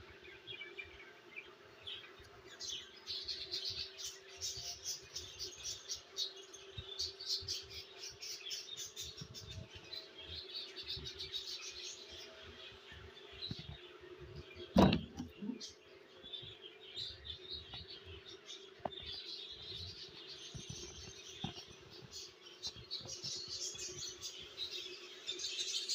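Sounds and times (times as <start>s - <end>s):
small birds chirping: 0.0s - 25.9s
loud knock: 14.8s - 15.3s.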